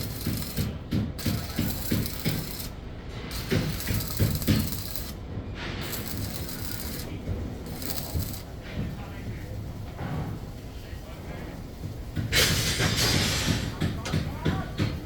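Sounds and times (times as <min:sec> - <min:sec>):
mechanical clatter: 0:00.0 - 0:08.6.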